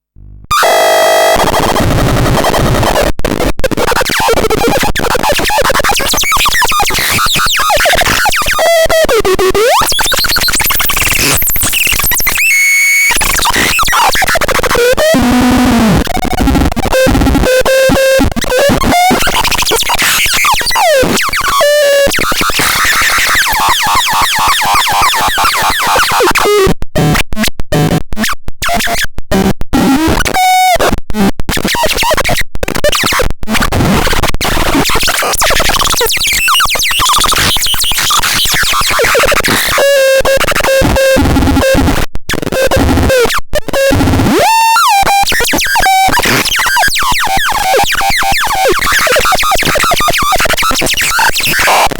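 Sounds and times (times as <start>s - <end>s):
harsh synthesizer tones: 18.6s - 26.5s.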